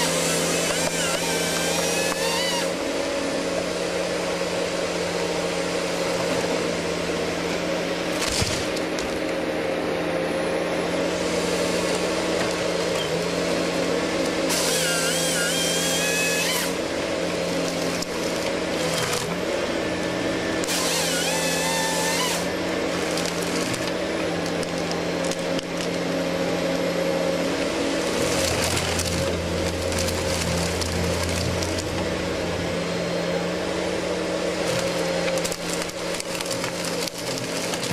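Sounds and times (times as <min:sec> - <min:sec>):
saw cutting wood: 0:00.0 - 0:03.0, 0:14.3 - 0:19.5, 0:20.2 - 0:26.1, 0:26.7 - 0:32.3
heavy machine engine running: 0:00.0 - 0:37.9.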